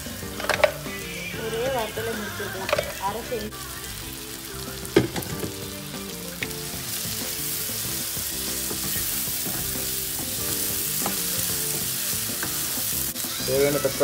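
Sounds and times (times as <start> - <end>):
onions sizzling in oil: 0.0 - 14.0
wooden spatula stirring: 4.8 - 14.0
utensil knock: 5.0 - 5.7, 7.9 - 12.7.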